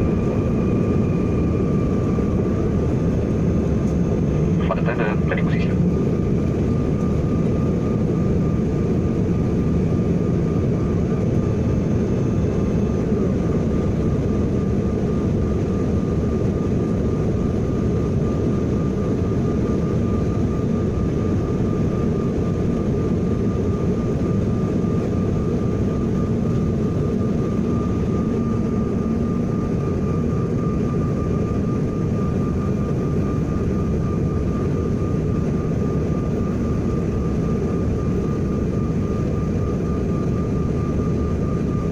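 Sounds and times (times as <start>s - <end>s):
jet engine cabin rumble: 0.0s - 41.9s
thin steady whine: 3.9s - 9.1s.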